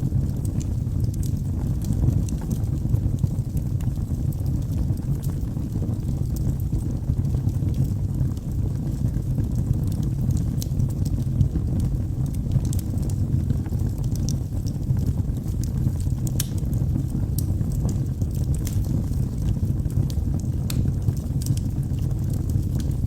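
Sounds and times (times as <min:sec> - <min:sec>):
low rumble of flames: 0:00.0 - 0:23.0
wood fire crackling: 0:00.0 - 0:23.0.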